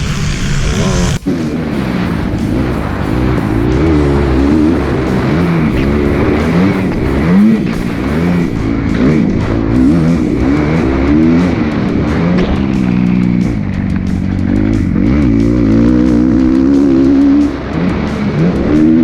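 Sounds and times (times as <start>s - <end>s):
background music: 0.0s - 19.0s
motorcycle engine revving: 0.0s - 19.0s.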